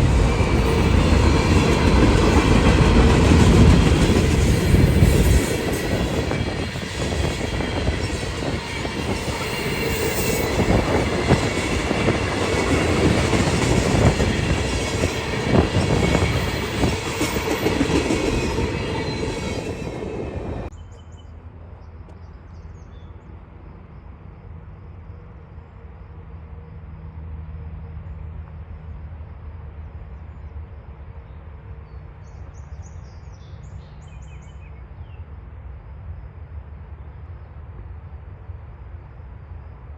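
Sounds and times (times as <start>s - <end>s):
freight train rumbling past: 0.0s - 20.8s.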